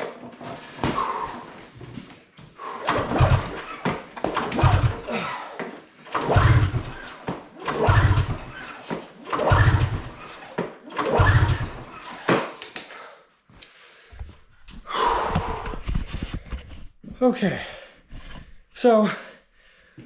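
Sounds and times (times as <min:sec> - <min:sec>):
engine pull-start turning over: 0:02.8 - 0:05.2, 0:06.0 - 0:12.6.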